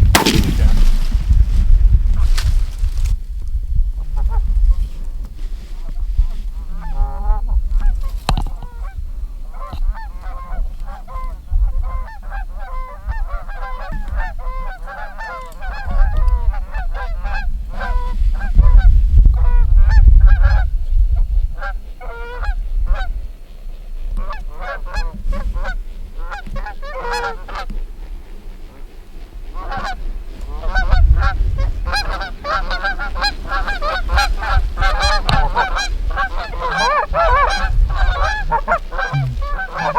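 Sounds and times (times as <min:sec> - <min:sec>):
wind buffeting microphone: 0:00.0 - 0:39.9
geese honking: 0:06.6 - 0:18.1, 0:24.2 - 0:27.7, 0:28.6 - 0:39.9.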